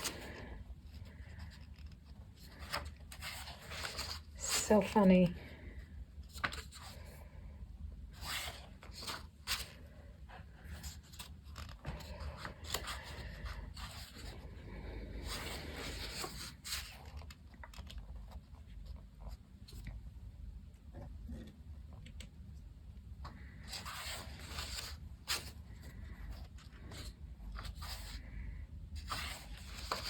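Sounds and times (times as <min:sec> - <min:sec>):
paper pages rustling: 0:00.0 - 0:05.0, 0:06.2 - 0:07.1, 0:08.1 - 0:14.5, 0:15.2 - 0:19.9, 0:23.3 - 0:28.2, 0:29.0 - 0:30.0.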